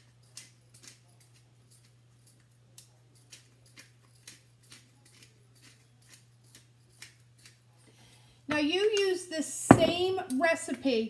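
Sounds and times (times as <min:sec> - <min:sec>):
seasoning shaker rattles: 0:00.0 - 0:07.8.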